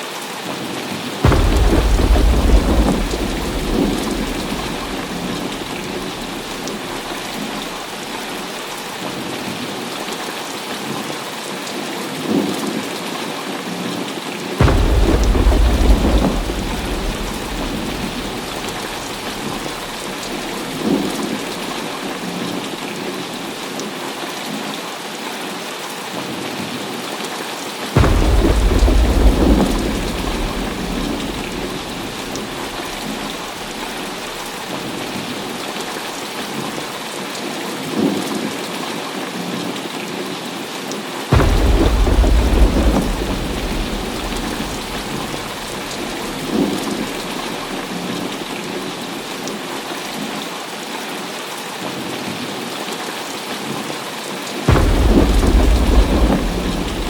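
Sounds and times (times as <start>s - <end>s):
heavy rain falling: 0.0s - 57.0s
thunder crack and rumble: 1.2s - 8.8s, 14.6s - 23.1s, 28.0s - 36.1s, 41.3s - 49.6s, 54.7s - 57.0s.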